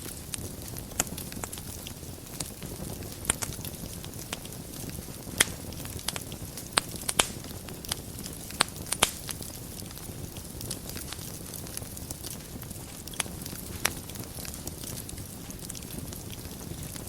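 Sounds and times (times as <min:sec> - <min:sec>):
fire crackling and popping: 0:00.0 - 0:17.0
fire flames rushing: 0:00.0 - 0:17.0.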